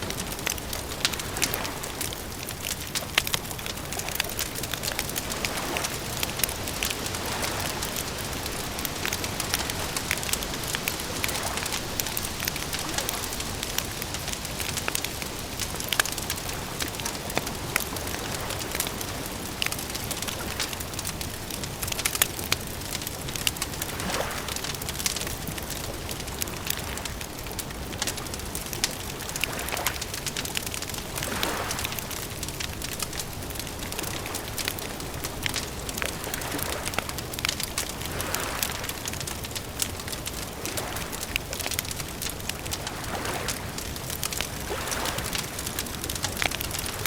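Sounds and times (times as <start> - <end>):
wood fire crackling: 0.0 - 47.0.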